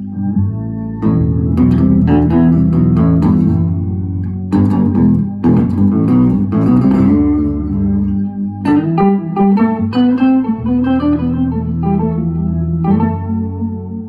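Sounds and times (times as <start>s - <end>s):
guitar picking low notes: 0.0s - 14.0s
guitar strums: 1.0s - 13.2s.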